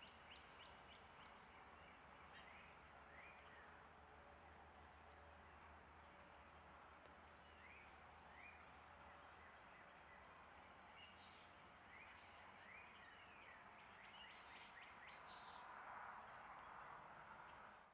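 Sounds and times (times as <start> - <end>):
faint songbird chirps: 7.4 - 15.6.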